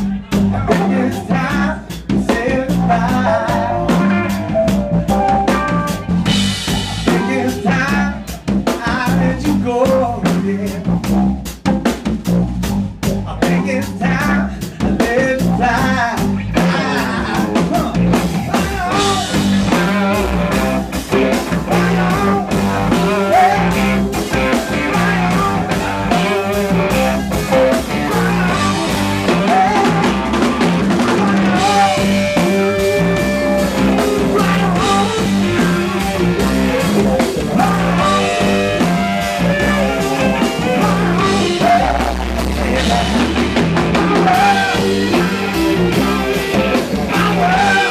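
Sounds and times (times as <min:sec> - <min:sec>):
electric guitar: 0:00.0 - 0:12.4, 0:13.0 - 0:47.9
bass guitar: 0:00.0 - 0:47.9
drum kit: 0:00.0 - 0:47.9.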